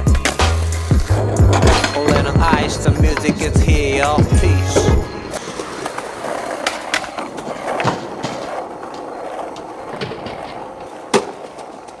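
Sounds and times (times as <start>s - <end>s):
skateboard clacking: 0.0s - 12.0s
skateboard wheels rolling: 0.0s - 12.0s.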